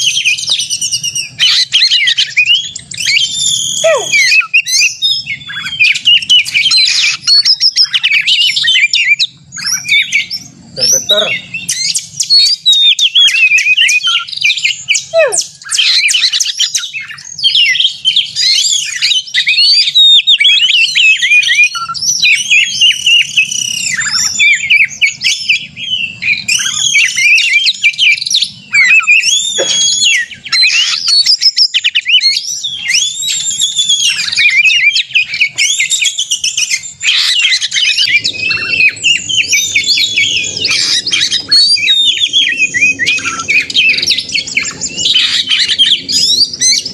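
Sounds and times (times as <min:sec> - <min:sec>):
magpie-robin singing: 0:00.0 - 0:46.9.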